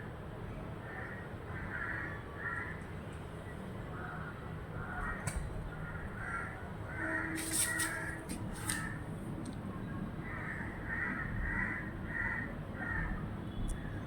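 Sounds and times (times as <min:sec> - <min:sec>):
birds calling harshly: 0:03.8 - 0:09.1.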